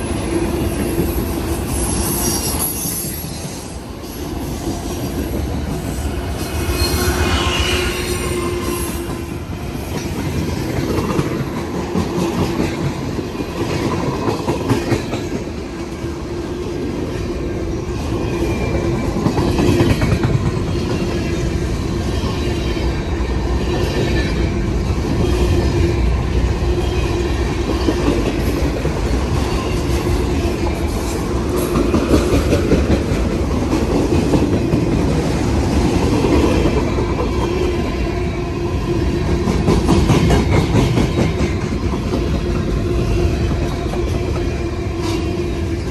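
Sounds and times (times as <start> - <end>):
train hum: 0.0 - 45.9
train wheels clattering over rail joints: 39.3 - 45.2.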